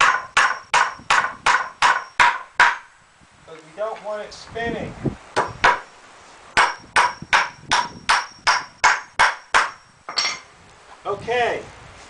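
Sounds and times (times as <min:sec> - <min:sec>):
hammer striking nail into wood: 0:00.0 - 0:02.9, 0:05.4 - 0:05.9, 0:06.6 - 0:10.2.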